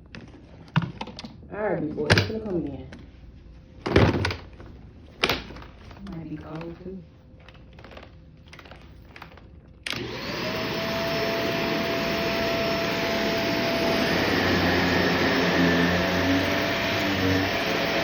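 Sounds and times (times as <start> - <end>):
vacuum cleaner motor: 9.9 - 18.0.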